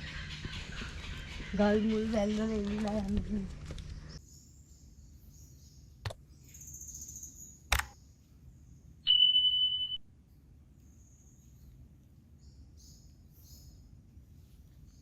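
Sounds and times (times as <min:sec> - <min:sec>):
sharp clicks: 0:07.7 - 0:08.0
high beep: 0:09.1 - 0:10.0.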